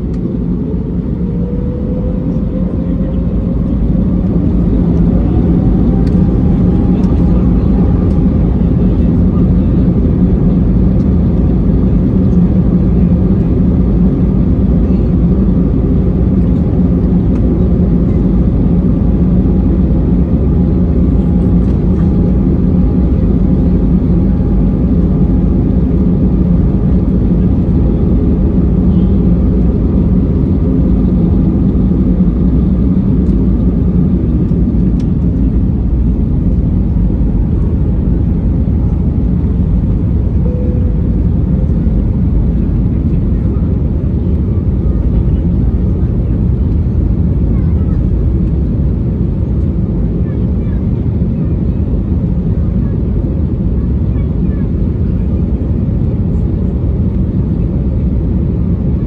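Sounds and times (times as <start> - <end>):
aircraft cabin engine rumble: 0.0 - 59.0.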